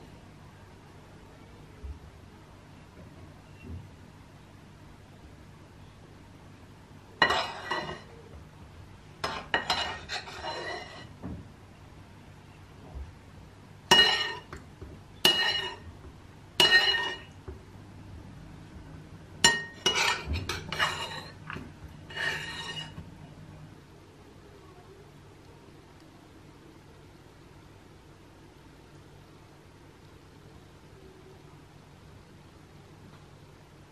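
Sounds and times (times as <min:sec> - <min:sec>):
dishes and cutlery clinking: 0:07.2 - 0:08.2, 0:09.2 - 0:11.1, 0:13.9 - 0:14.6, 0:15.2 - 0:15.9, 0:16.6 - 0:17.4, 0:19.4 - 0:23.1.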